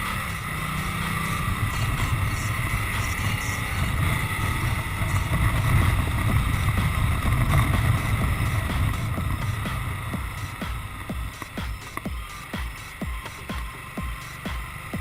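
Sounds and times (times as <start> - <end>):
motorcycle engine running: 0.0 - 15.0
wind buffeting microphone: 1.1 - 12.0.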